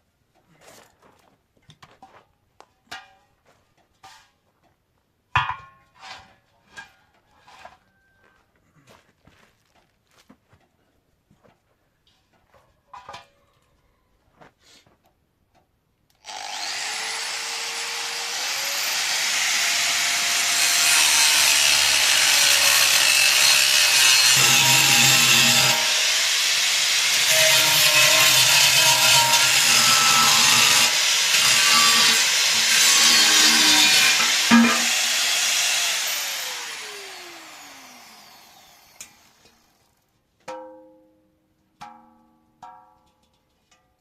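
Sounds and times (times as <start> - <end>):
power tool cutting: 16.2 - 39.8.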